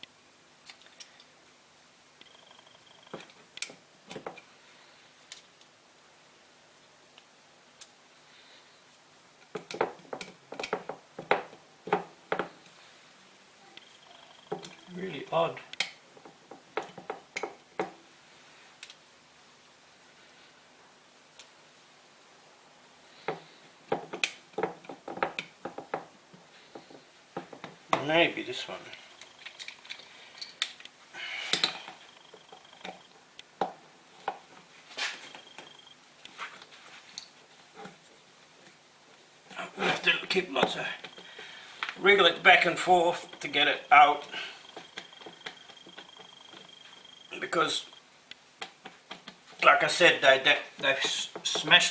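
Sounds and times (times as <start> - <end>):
metal tools clinking and scraping: 28.6 - 33.1
hand tools knocking and clinking: 42.1 - 47.6, 50.7 - 51.9.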